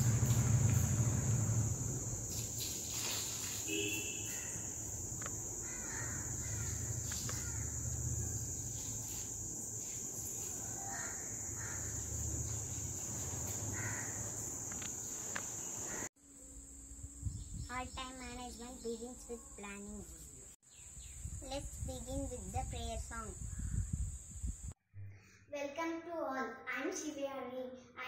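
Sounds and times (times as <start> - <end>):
birds calling: 2.0 - 16.1.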